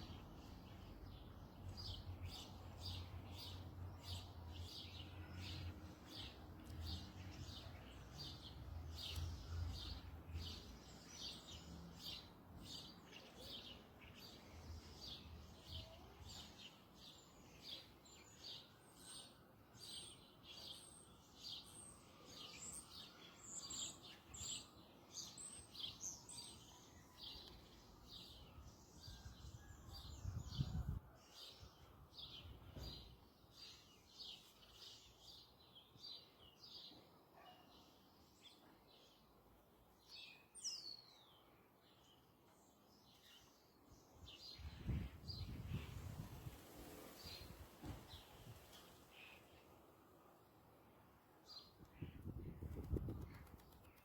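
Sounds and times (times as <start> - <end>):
small birds chirping: 0.0 - 29.3, 51.4 - 54.0.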